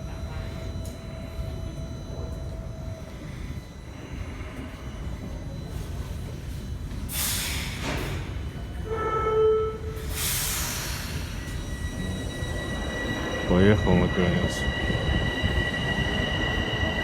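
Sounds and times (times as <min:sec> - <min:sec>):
subway train low rumble: 0:00.0 - 0:17.0
short horn-like tone: 0:08.8 - 0:10.0.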